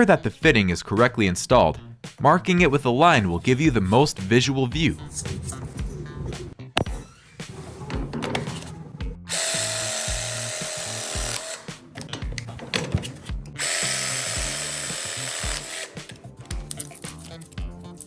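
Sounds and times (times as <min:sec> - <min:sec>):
background music with beat: 0:01.8 - 0:18.0
power tool running: 0:09.3 - 0:11.9, 0:13.5 - 0:16.2.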